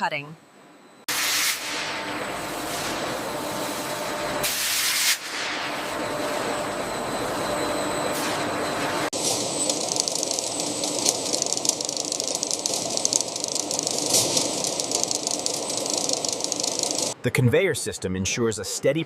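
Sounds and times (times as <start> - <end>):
machinery humming with hiss: 1.1 - 17.2
machine rattling: 9.1 - 17.2.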